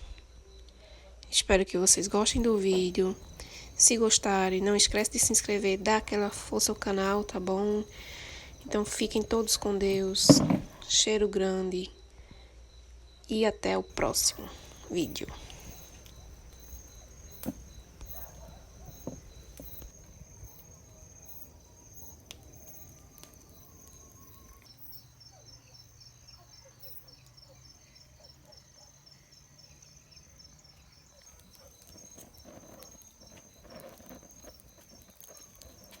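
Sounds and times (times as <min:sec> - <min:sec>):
crickets chirping: 0:01.8 - 0:11.0, 0:13.9 - 0:36.0
insect pulsing: 0:01.9 - 0:11.0, 0:13.9 - 0:25.1, 0:29.9 - 0:36.0
faint clicks: 0:02.0 - 0:10.9, 0:14.0 - 0:24.7.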